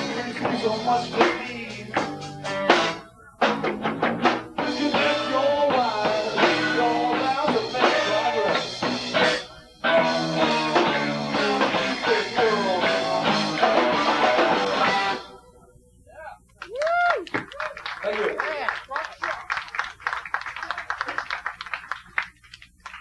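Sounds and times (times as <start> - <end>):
drum kit: 0.0 - 15.3
bass guitar: 0.0 - 15.4
electric guitar: 0.0 - 15.6.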